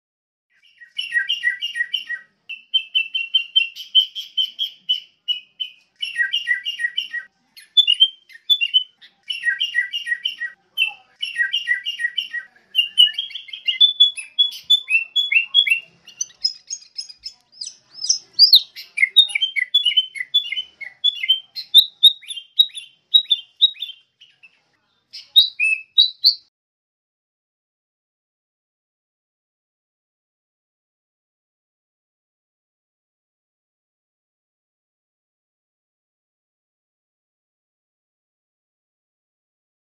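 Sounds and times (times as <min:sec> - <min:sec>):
bird chattering notes: 0:09.4 - 0:24.0.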